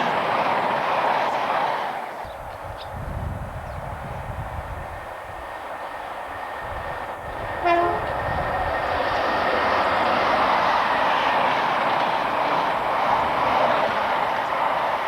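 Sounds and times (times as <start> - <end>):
train rushing: 0.0 - 15.0
train horn blast: 7.6 - 8.4.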